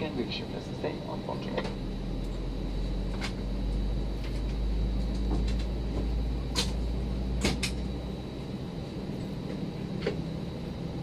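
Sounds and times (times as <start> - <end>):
aircraft cabin rumble and hum: 0.0 - 11.0
sharp clicks in cabin: 3.1 - 3.4, 4.2 - 6.8, 7.4 - 7.9, 9.5 - 10.2.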